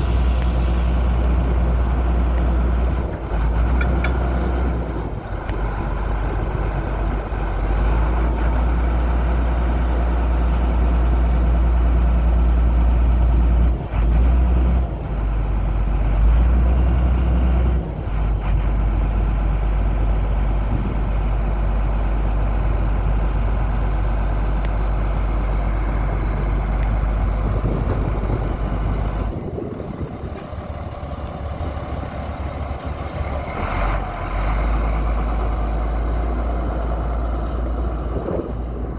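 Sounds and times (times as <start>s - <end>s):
truck engine rumbling: 0.0s - 38.9s.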